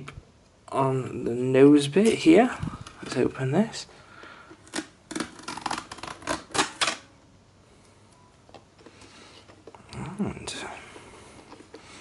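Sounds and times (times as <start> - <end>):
packing tape peeling off plastic: 4.6 - 7.1.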